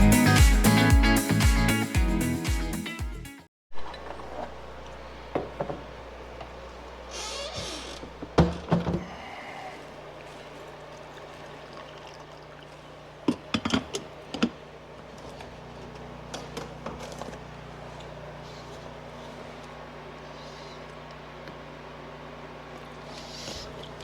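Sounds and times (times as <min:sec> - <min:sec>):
low steady hum: 0:03.8 - 0:24.0.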